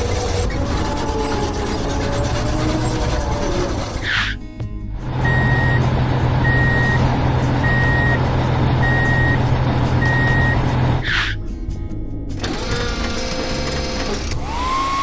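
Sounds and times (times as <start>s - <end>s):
truck engine humming: 0.0s - 11.3s
reversing alarm beeps: 5.3s - 5.8s, 6.4s - 7.0s, 7.6s - 8.2s, 8.8s - 9.4s, 10.0s - 10.6s.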